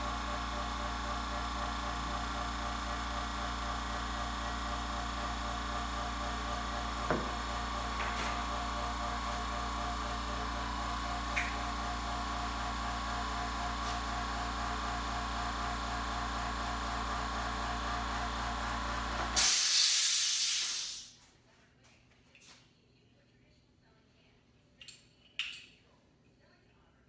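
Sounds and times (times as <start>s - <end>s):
steady mechanical hum: 0.0s - 27.0s
loud hiss: 19.4s - 21.2s.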